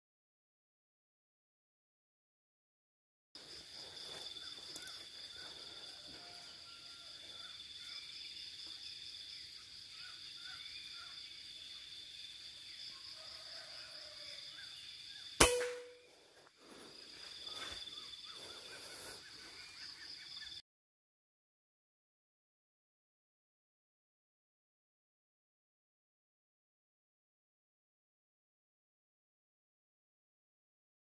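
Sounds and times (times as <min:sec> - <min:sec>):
high insect drone: 0:03.4 - 0:15.4, 0:16.1 - 0:20.6
faint bird chirps: 0:09.3 - 0:11.9
rifle shot with metallic ring: 0:15.4 - 0:16.1.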